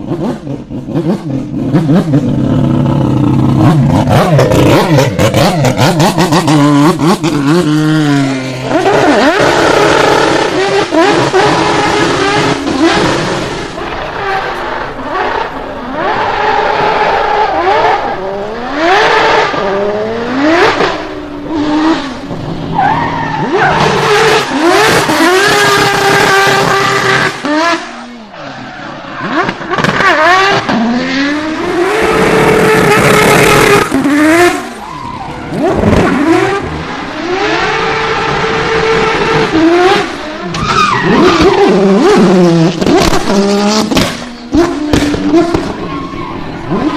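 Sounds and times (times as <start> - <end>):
car engine revving hard: 0.0 - 28.1, 29.2 - 45.9
tyres squealing: 12.4 - 25.1, 40.4 - 42.2.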